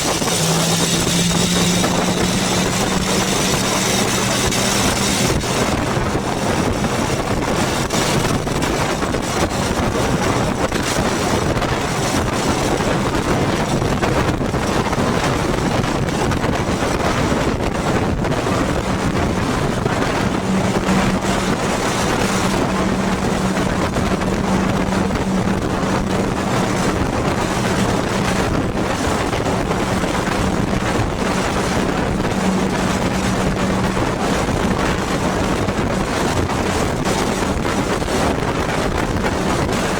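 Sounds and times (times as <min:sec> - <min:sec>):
motorcycle engine running: 0:00.0 - 0:15.2
wind noise on microphone: 0:00.0 - 0:39.9.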